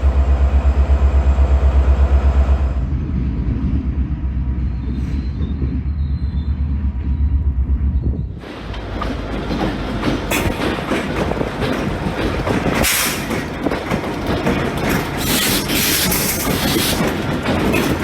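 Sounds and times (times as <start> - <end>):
train wheels clattering over rails: 8.3 - 18.0.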